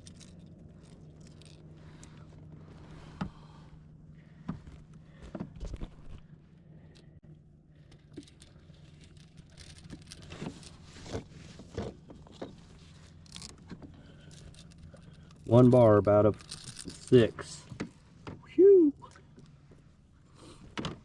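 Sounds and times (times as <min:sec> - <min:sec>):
fishing tackle clicking and rattling: 0:00.0 - 0:02.2, 0:07.8 - 0:10.8, 0:13.1 - 0:17.6
steady low hum: 0:00.0 - 0:21.0.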